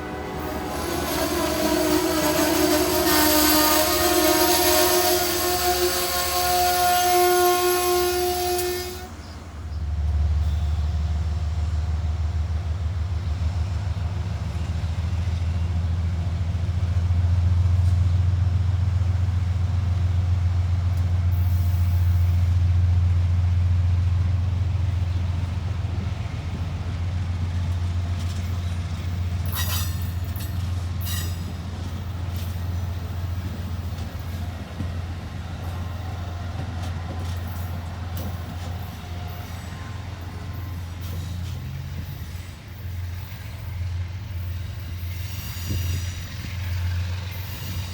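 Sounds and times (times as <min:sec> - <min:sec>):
train wheels squealing: 0:00.0 - 0:09.4, 0:10.3 - 0:11.1, 0:21.4 - 0:22.6, 0:27.6 - 0:47.9
diesel locomotive rumbling: 0:00.0 - 0:47.9.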